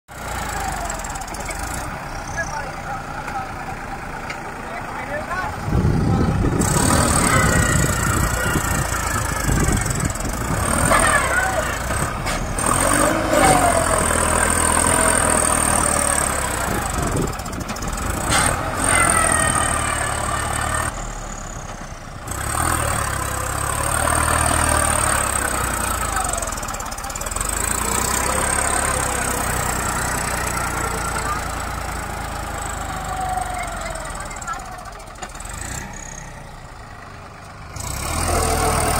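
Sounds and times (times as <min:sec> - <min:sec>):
tractor diesel engine running: 0:00.1 - 0:38.9
faint voices: 0:02.1 - 0:12.2, 0:25.4 - 0:35.5.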